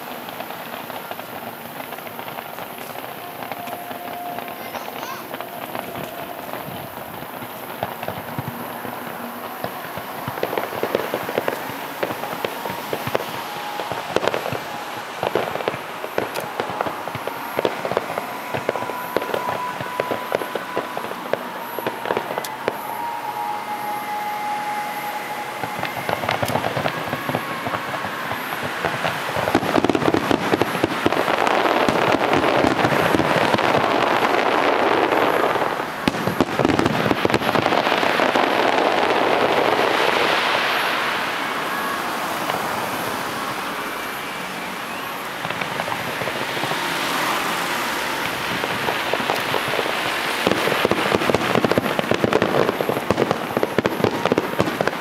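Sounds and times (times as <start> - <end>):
fireworks bangs and crackles: 0.0 - 55.0
fireworks whistling: 0.0 - 55.0.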